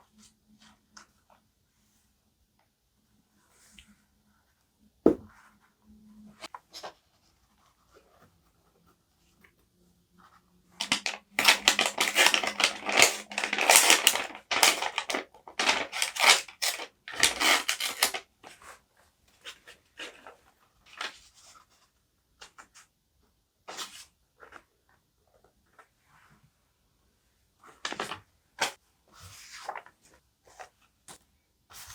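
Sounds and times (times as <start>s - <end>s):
knock on desk: 5.1s - 5.3s
crackly paper strokes: 10.8s - 18.8s.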